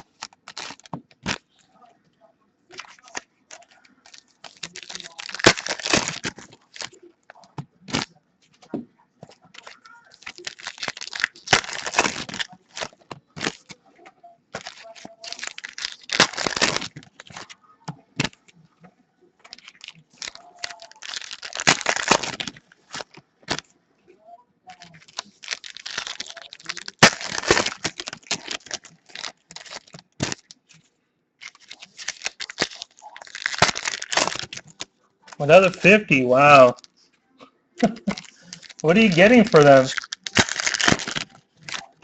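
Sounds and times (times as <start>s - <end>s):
wrappers tearing and crinkling: 0.0s - 1.4s, 2.7s - 8.1s, 9.4s - 13.8s, 14.5s - 17.6s, 19.4s - 23.6s, 24.7s - 30.6s, 31.4s - 36.9s, 37.8s - 42.0s
cards being handled: 14.6s - 18.5s, 19.4s - 23.7s, 31.4s - 37.0s, 37.8s - 42.0s.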